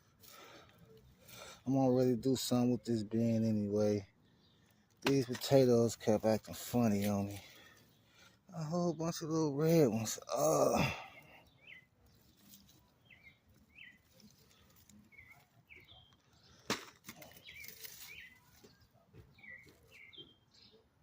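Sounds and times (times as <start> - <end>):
small bird chirping: 11.4 - 16.6, 17.2 - 21.0.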